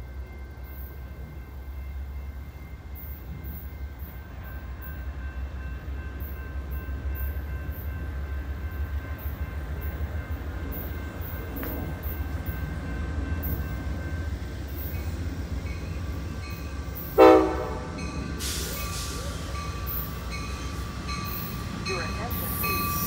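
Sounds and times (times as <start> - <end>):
passenger train rumbling: 0.0 - 23.0
locomotive horn blast: 17.1 - 18.7.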